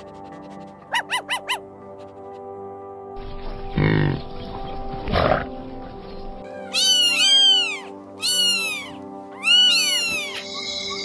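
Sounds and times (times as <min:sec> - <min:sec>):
background music: 0:00.0 - 0:11.0
high-pitched animal calls: 0:06.6 - 0:11.0.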